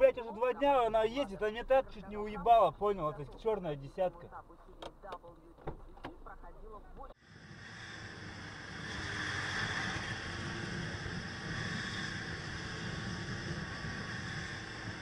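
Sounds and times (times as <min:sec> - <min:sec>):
moving car road noise: 0:00.0 - 0:15.0.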